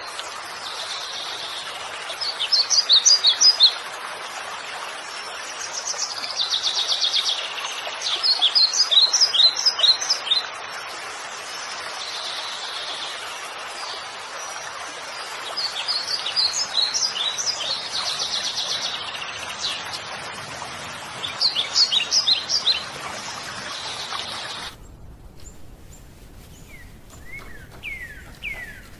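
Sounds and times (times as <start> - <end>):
songbirds trilling and chirping: 15.5 - 28.9
background hiss: 23.2 - 28.9.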